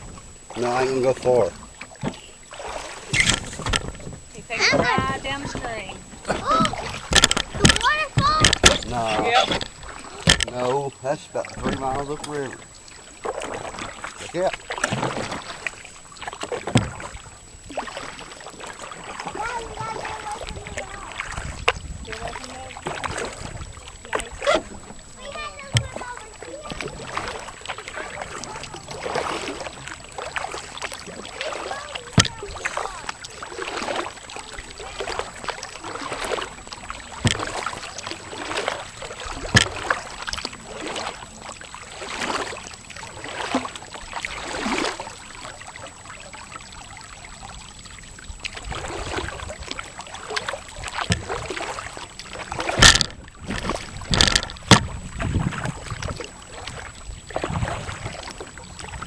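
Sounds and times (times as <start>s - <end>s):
paddle swishing through water: 0.0s - 59.0s
water splashes: 0.0s - 59.0s
sharp knocks: 3.1s - 10.6s, 52.7s - 55.0s.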